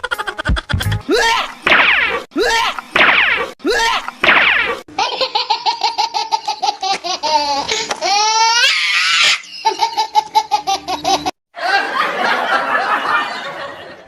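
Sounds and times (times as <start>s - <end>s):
high-pitched giggling laughter: 0.0s - 1.6s, 4.9s - 13.2s.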